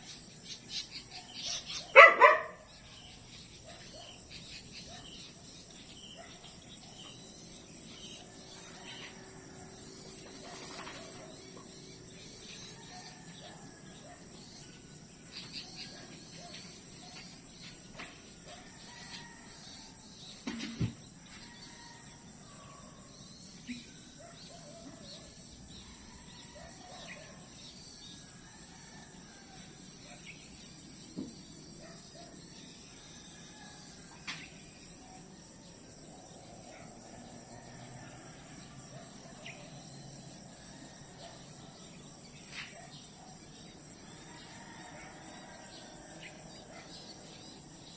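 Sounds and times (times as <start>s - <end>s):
insect chorus trilling: 0.0s - 47.9s.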